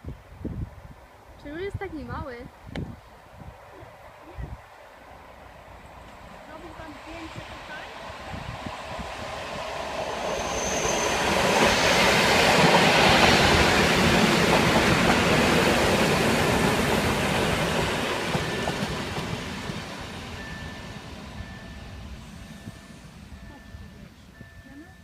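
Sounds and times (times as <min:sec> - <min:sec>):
train passing on rails: 0:03.1 - 0:25.0.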